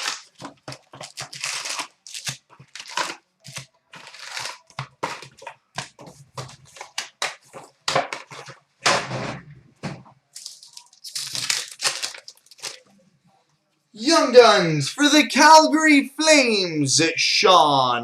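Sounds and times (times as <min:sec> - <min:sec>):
plastic wrappers crinkling and tearing: 0:00.0 - 0:08.6, 0:10.4 - 0:12.9.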